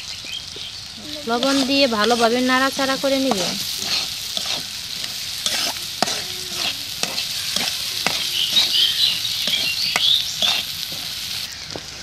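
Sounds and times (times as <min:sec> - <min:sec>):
spices sizzling in hot oil: 0:00.0 - 0:12.0
spatula scraping metal pan: 0:01.3 - 0:11.1.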